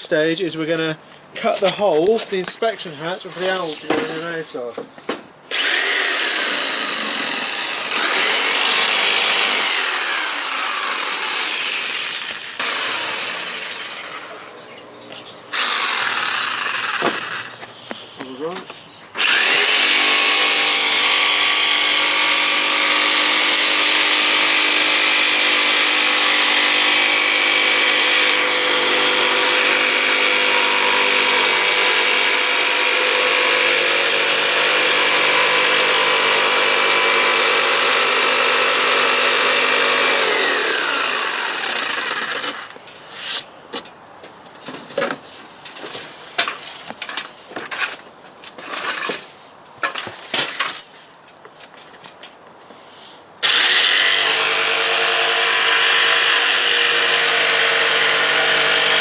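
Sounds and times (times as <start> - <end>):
power saw cutting wood: 2.4 - 4.5, 5.5 - 14.6, 15.5 - 18.6, 19.2 - 43.4, 53.4 - 59.0
saw motor winding down: 5.5 - 14.5, 15.5 - 17.6, 19.2 - 42.6, 53.4 - 59.0
wood and tool clattering: 43.8 - 52.4.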